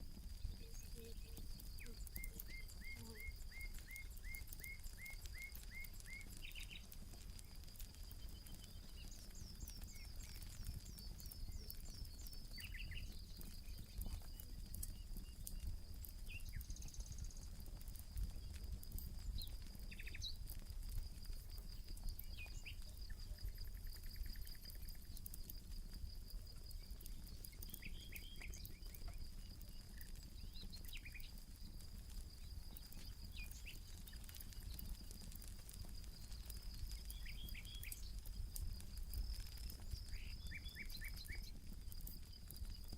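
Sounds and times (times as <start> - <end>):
campfire crackling: 0.0 - 42.9
high-pitched insect trill: 0.4 - 6.9, 16.5 - 17.6, 21.0 - 42.9.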